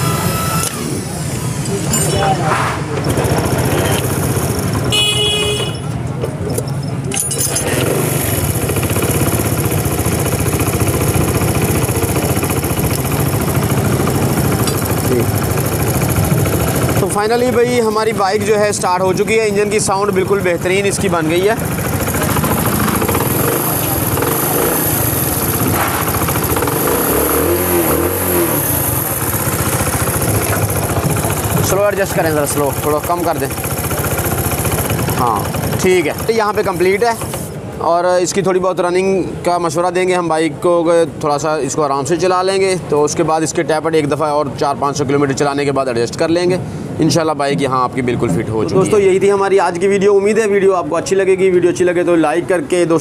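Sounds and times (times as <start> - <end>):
small motorcycle engine running: 0.0 - 2.0, 3.0 - 5.9, 7.4 - 37.6.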